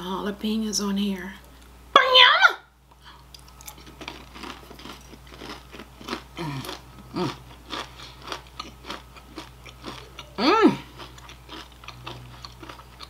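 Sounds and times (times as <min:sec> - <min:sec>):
chewing and crunching salad: 0:03.0 - 0:13.0
person humming mm: 0:06.4 - 0:07.4, 0:10.2 - 0:10.9.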